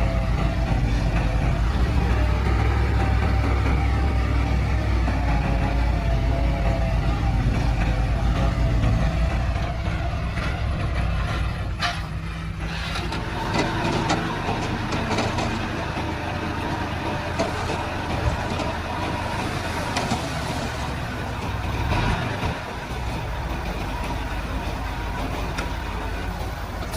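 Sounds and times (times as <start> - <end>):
bulldozer diesel engine running: 0.0 - 26.9
metal clanks and rattles: 7.6 - 15.8.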